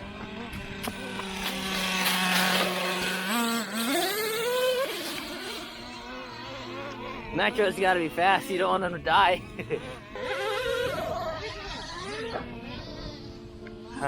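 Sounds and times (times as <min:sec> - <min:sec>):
rc truck nitro engine revving: 0:00.0 - 0:14.0.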